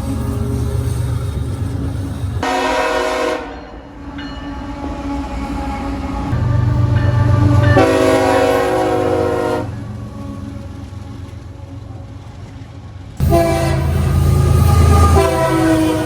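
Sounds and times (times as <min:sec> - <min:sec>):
locomotive rumble: 0:00.0 - 0:16.0
locomotive horn blast: 0:02.4 - 0:03.8, 0:06.4 - 0:09.8, 0:13.2 - 0:16.0.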